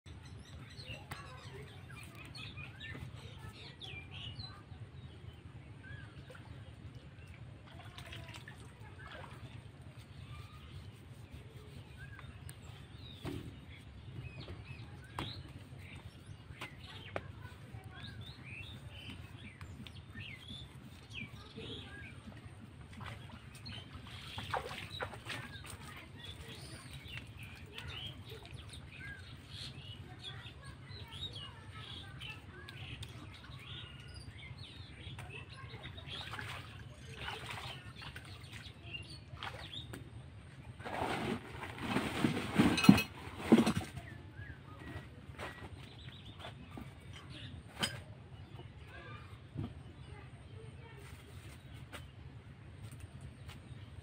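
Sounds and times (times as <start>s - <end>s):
birds chirping and calling: 0.1s - 7.3s, 8.9s - 40.4s.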